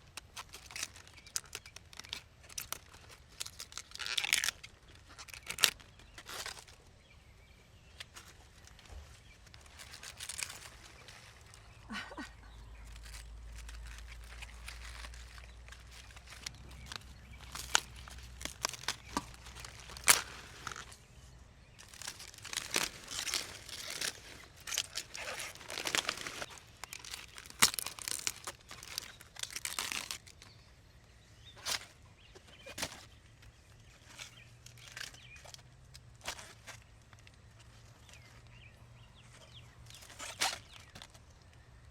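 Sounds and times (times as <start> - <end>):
rustling and crinkling: 0.0 - 41.9.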